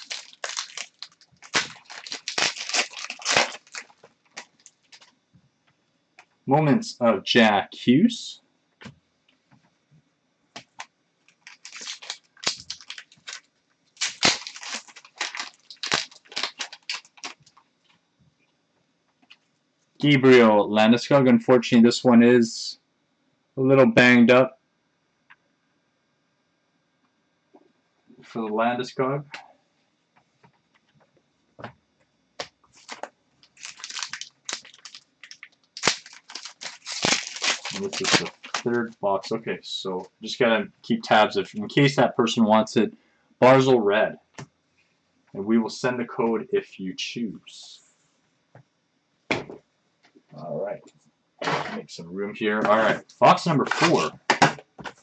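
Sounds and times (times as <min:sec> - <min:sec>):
card pack wrapper crinkling: 0:00.0 - 0:05.1, 0:10.6 - 0:17.6, 0:32.7 - 0:38.9, 0:53.7 - 0:54.1.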